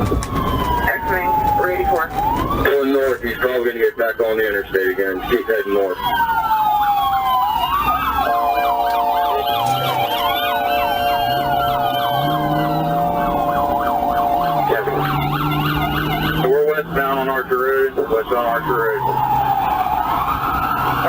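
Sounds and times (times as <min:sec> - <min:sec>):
police sirens wailing: 0:00.0 - 0:21.0
steady held tone: 0:08.2 - 0:16.8.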